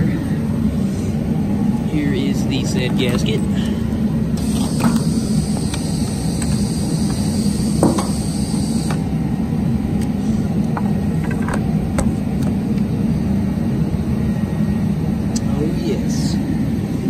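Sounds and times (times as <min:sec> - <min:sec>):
low background rumble: 0:00.0 - 0:17.0
hiss: 0:04.4 - 0:09.0.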